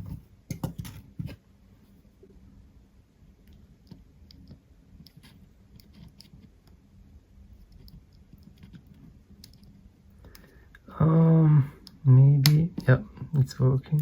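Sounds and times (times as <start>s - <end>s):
low steady hum: 0.0s - 14.0s
small parts and tools clicking: 7.7s - 10.8s.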